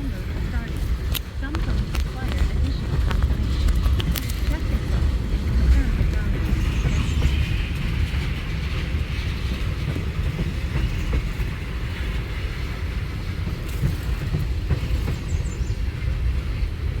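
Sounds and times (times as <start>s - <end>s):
freight train rumbling on rails: 0.0s - 17.0s
faint clicks: 0.7s - 5.0s.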